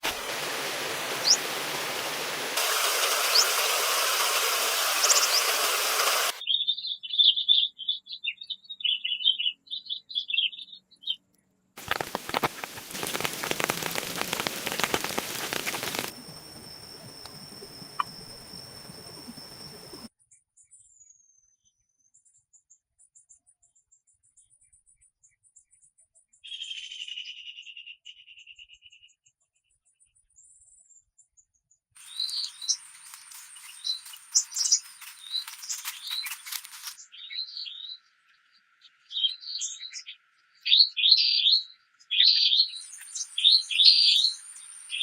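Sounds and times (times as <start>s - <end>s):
dense clicking hiss: 0.0s - 6.4s, 11.8s - 20.1s, 32.0s - 37.0s
rain hiss: 0.0s - 6.4s, 11.8s - 20.1s, 32.0s - 37.0s, 42.9s - 45.0s
bird chirps: 1.1s - 1.8s, 2.6s - 20.1s, 32.0s - 38.1s, 39.0s - 45.0s
songbird warbling: 1.1s - 6.4s, 11.8s - 20.1s, 32.0s - 37.0s, 42.8s - 45.0s
steady high-pitched tones: 11.9s - 20.1s.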